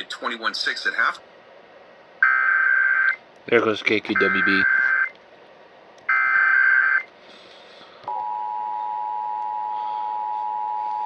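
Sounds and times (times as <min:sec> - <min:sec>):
digital data tones: 0:04.2 - 0:05.1.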